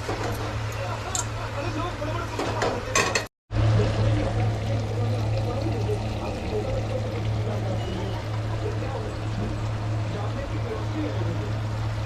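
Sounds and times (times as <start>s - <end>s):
constant low hum: 3.6s - 12.0s
liquid sizzling in a pan: 4.1s - 10.8s.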